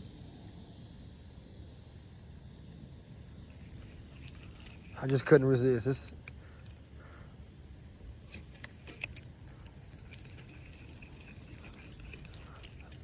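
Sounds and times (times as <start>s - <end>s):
insects trilling: 0.0s - 13.0s
faint clicks: 5.9s - 7.2s, 8.0s - 13.0s.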